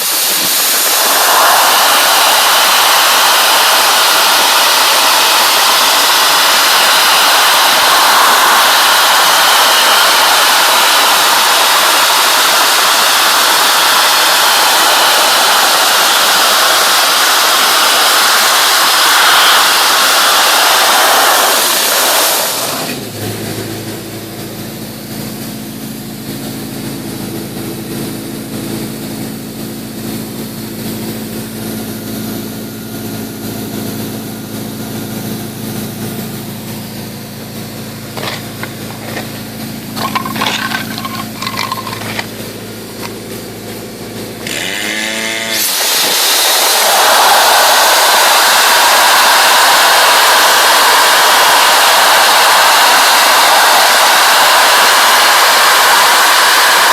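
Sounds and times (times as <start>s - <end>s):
dry-ice blasting nozzle hissing: 0.0s - 23.4s, 37.8s - 56.9s.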